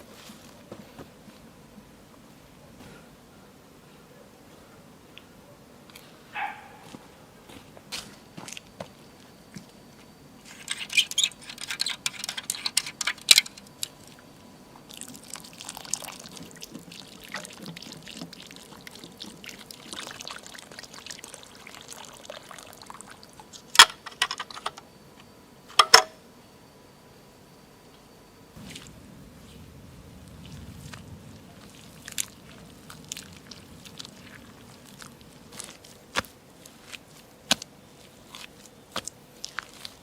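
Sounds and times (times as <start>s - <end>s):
water pouring and splashing: 14.9s - 23.6s, 28.6s - 40.0s.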